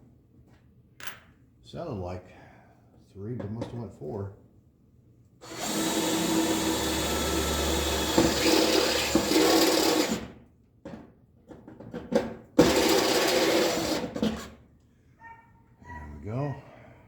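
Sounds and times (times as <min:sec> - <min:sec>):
power drill cutting sheet metal: 0:05.4 - 0:10.3, 0:12.6 - 0:14.4.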